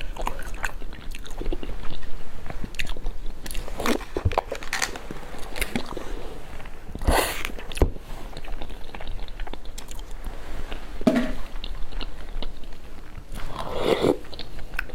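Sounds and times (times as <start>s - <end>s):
chewing and wet mouth clicks: 0.0s - 4.0s, 8.4s - 10.2s, 14.0s - 14.9s.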